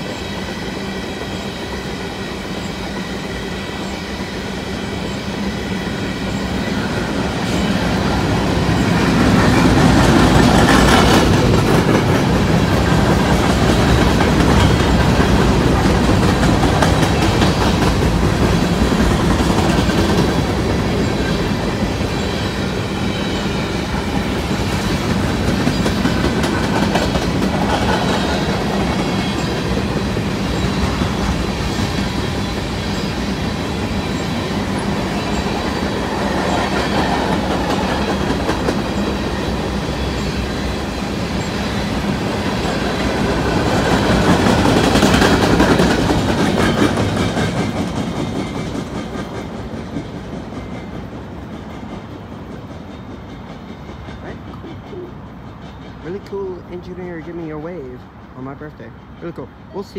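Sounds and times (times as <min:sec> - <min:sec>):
freight train rolling past: 0:00.0 - 0:59.9
wheels clicking over rail joints: 0:06.2 - 0:22.4, 0:23.4 - 0:32.6, 0:41.3 - 0:57.7.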